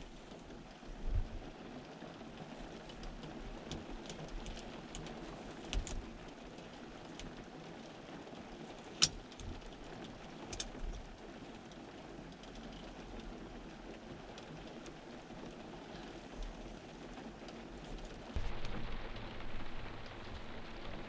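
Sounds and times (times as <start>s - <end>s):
rain hiss: 18.4s - 21.0s
water drips ticking: 18.4s - 21.0s.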